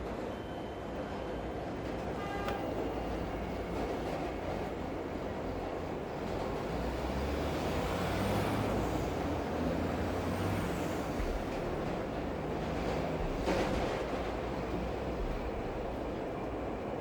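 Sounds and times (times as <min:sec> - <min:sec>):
low vehicle rumble: 0:07.0 - 0:16.8.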